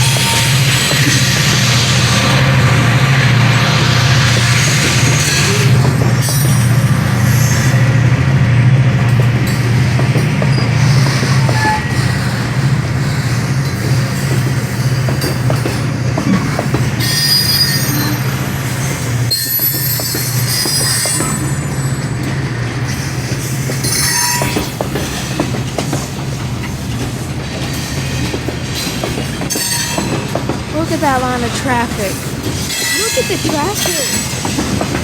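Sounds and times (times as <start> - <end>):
freight train rumbling past: 0.0 - 35.0
high-pitched wheel squeals: 10.5 - 12.4, 17.0 - 18.4, 19.3 - 21.9.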